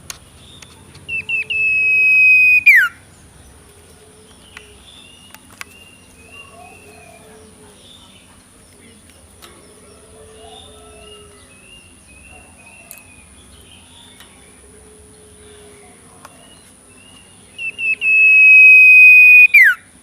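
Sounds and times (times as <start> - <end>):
young bird chirping: 0.4 - 3.0, 16.3 - 19.8
high bird whistle: 1.1 - 3.0, 17.6 - 19.9.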